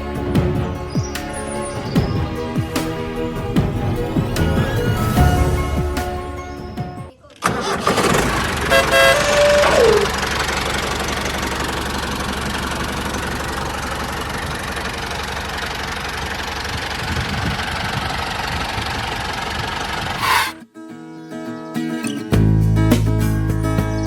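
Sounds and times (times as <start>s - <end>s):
tractor engine running: 0.0s - 20.6s
pitched sound sliding down: 20.2s - 20.6s.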